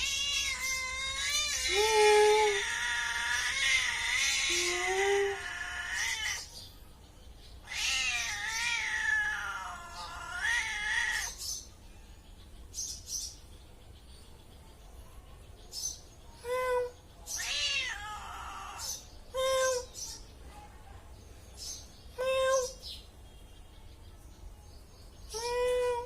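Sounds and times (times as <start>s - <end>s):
cat meowing: 0.0s - 6.6s, 7.6s - 11.4s, 17.4s - 19.0s.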